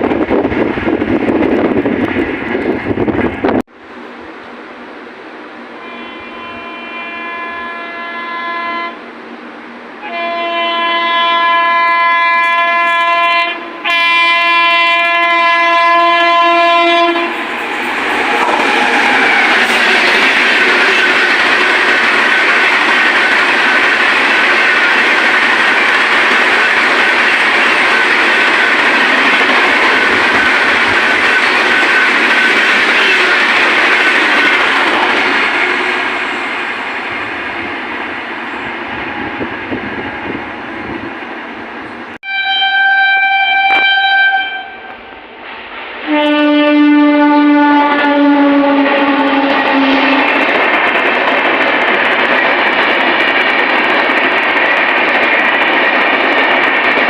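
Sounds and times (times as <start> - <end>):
train passing at speed: 0.0 - 57.0
train horn blasts: 5.8 - 9.0, 10.0 - 17.4, 31.2 - 34.7, 42.2 - 45.1, 46.0 - 50.4.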